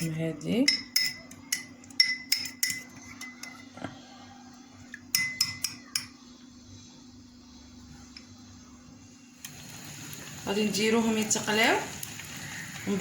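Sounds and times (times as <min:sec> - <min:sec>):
metal utensil clinking on bowl: 0:00.6 - 0:03.6, 0:05.1 - 0:06.1.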